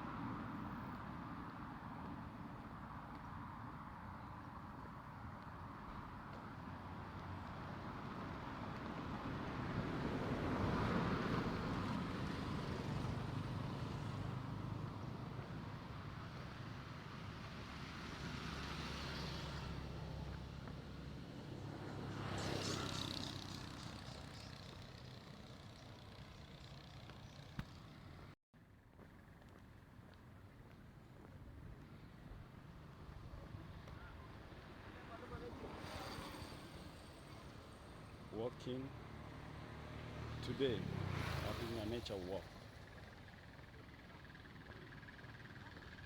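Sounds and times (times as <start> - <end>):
vehicles passing: 0.0 - 28.4, 29.8 - 46.0
steady engine hum: 30.4 - 46.0.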